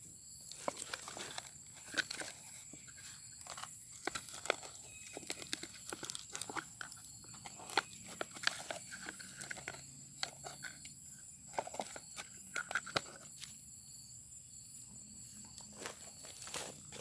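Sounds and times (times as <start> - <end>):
rustling and crackling: 0.5 - 10.9
footsteps: 15.6 - 17.0.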